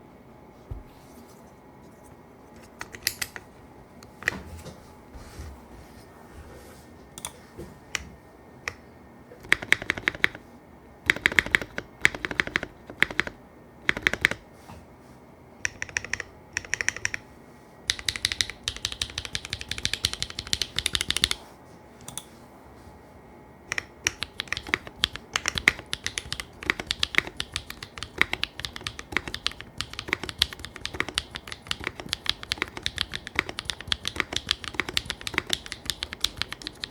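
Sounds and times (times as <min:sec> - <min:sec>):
mechanical keyboard typing: 0:09.4 - 0:10.4, 0:11.1 - 0:14.4, 0:15.6 - 0:17.2, 0:17.9 - 0:21.4, 0:23.7 - 0:36.9.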